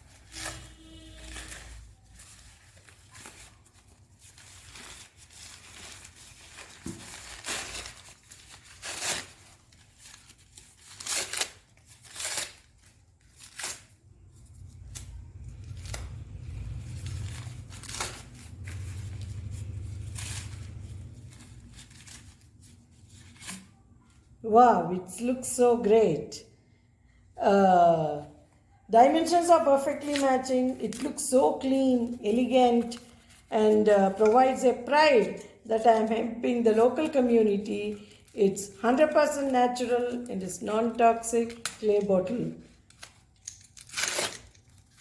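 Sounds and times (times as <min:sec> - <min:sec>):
packaging ripping and snipping: 0:00.0 - 0:23.8, 0:41.4 - 0:45.0
wrap crinkling: 0:00.0 - 0:24.4, 0:29.0 - 0:45.0.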